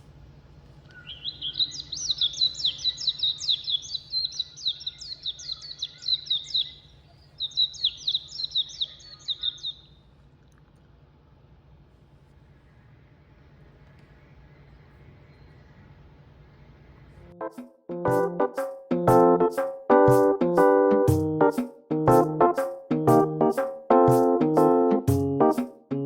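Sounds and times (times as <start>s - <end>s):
songbird singing high chirps: 0.9s - 9.9s.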